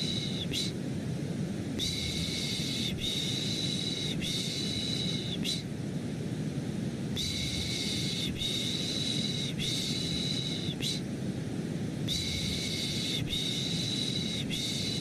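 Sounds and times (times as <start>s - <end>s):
rhythmic shushing: 0.0s - 0.8s
low white noise: 0.0s - 15.0s.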